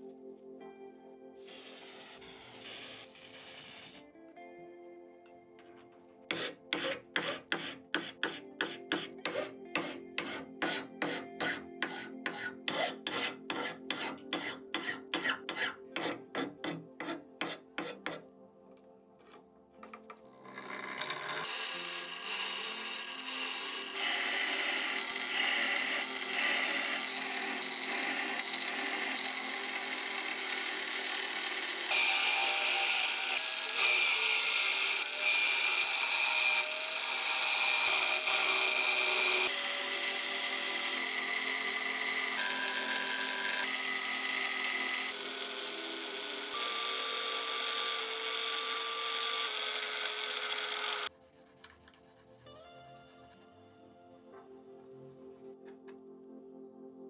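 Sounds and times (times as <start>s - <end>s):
power tool high whine: 1.4s - 4.0s, 20.4s - 51.1s
rasping and rubbing: 6.3s - 18.2s, 48.2s - 55.5s.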